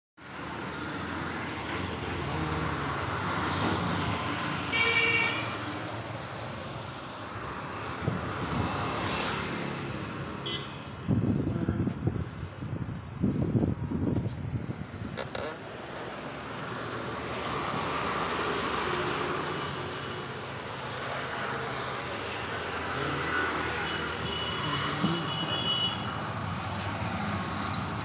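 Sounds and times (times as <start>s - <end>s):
road traffic: 0.2s - 28.0s
vehicle horn honking: 23.8s - 26.1s.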